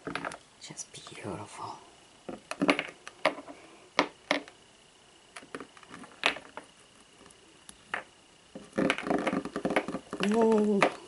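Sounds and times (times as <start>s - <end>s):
ornaments and packaging clicking: 5.3s - 11.0s.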